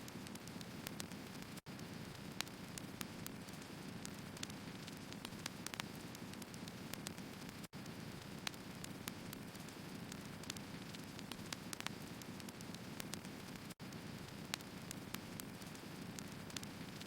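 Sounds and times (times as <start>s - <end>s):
firewood crackling and popping: 0.0s - 17.0s
low rumble of flames: 0.1s - 17.0s.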